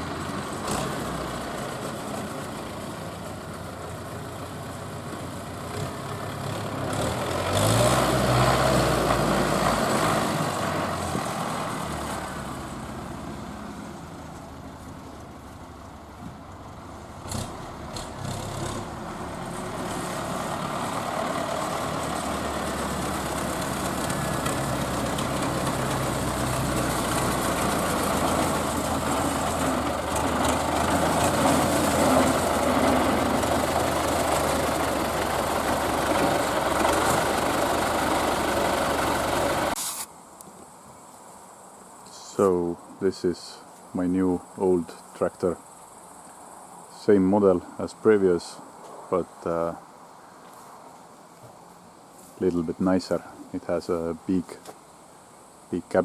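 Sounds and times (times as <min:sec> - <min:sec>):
diesel tractor engine running: 0:00.0 - 0:40.0.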